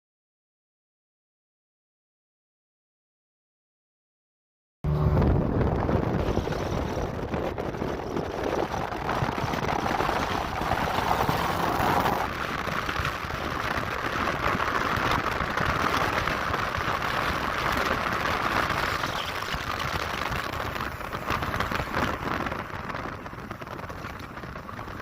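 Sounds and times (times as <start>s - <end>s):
car engine revving: 4.8s - 22.7s
road noise: 4.8s - 25.0s
wind noise: 4.8s - 25.0s.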